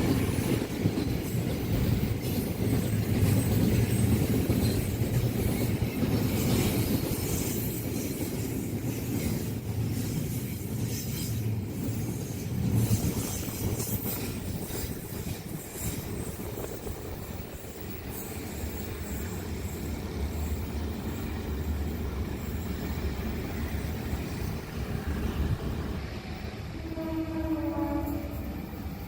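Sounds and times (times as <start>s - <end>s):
train wheels knocking on rails: 0.0s - 16.8s
train rumbling: 0.0s - 29.0s.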